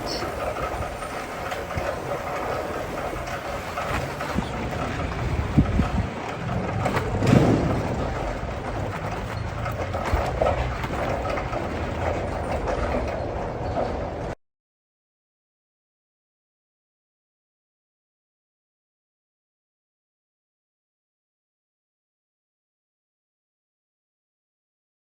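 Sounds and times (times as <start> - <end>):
bicycle rattles and knocks: 0.0 - 14.4
bicycle tyres rolling on road: 0.0 - 14.4
bicycle jolt: 0.4 - 11.5.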